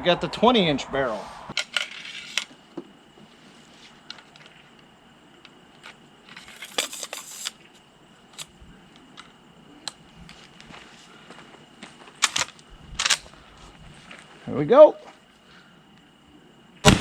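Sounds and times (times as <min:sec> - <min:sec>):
rifle metallic clicks and clacks: 0:12.2 - 0:13.2.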